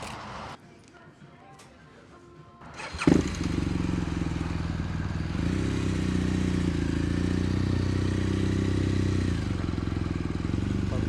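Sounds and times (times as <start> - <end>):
motorcycle engine idling: 2.7 - 11.0.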